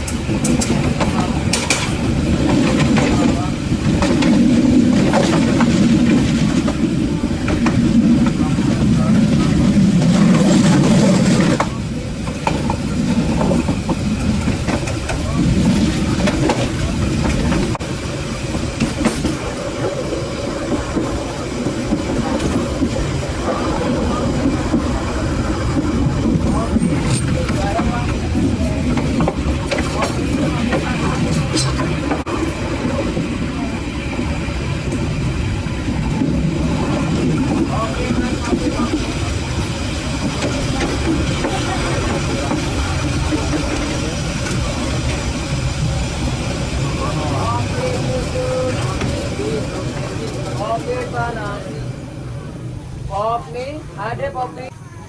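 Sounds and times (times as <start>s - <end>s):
faint voices: 0.0s - 55.0s
train rumbling on track: 0.0s - 55.0s.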